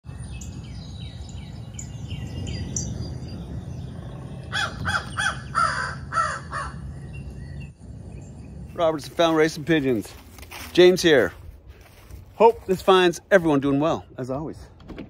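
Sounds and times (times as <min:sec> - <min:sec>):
small bird chirping: 0:00.0 - 0:08.9
crow cawing: 0:04.5 - 0:06.8.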